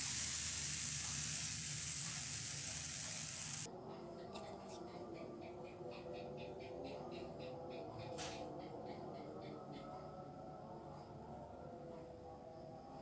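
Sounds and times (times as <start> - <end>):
batter sizzling in a pan: 0.0 - 3.7.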